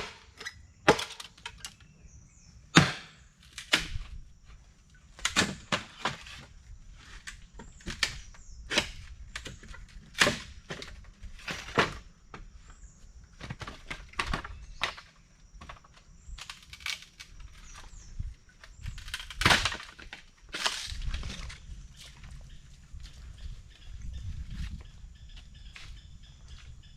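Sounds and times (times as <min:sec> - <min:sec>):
wooden cracks of branches breaking: 0:02.7 - 0:04.2, 0:05.2 - 0:06.4, 0:07.3 - 0:12.0, 0:15.7 - 0:17.9, 0:18.6 - 0:21.7.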